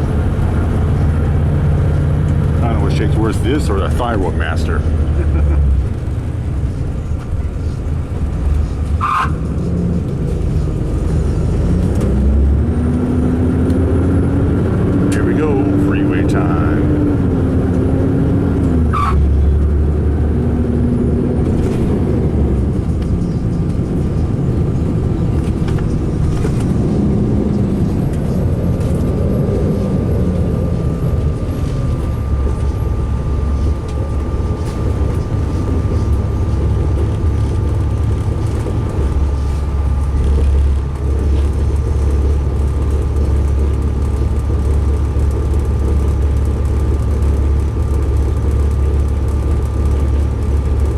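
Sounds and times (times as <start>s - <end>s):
diesel engine and road drone: 0.0s - 50.9s
thin steady whine: 27.2s - 50.9s.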